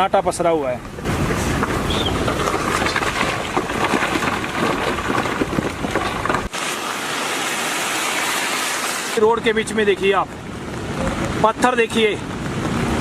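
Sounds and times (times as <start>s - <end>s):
wind buffeting microphone: 0.8s - 6.5s.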